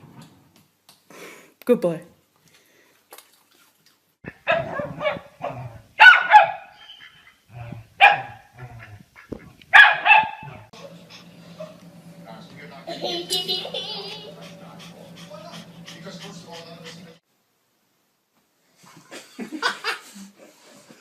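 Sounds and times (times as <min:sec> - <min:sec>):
dog barking: 0:04.3 - 0:06.8, 0:08.0 - 0:08.9, 0:09.7 - 0:10.7.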